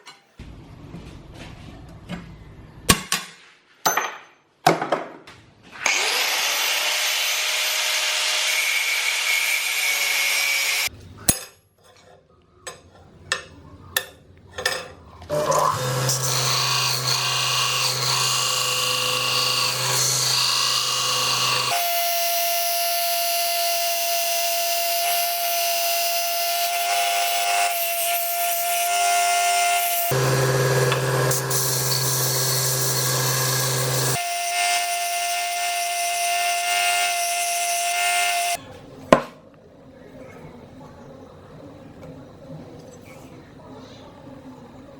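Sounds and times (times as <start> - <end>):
power tool running: 5.8 - 10.9, 15.3 - 38.6.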